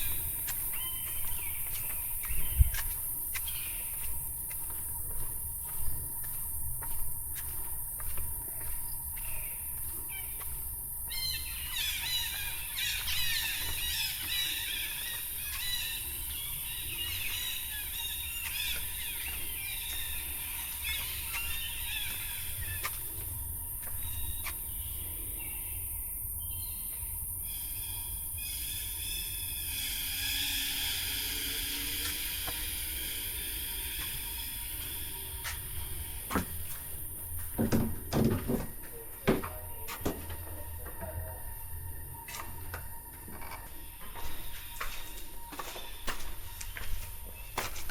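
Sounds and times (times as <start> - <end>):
high-pitched insect drone: 0.0 - 47.9
jungle birds chirping: 0.0 - 47.9.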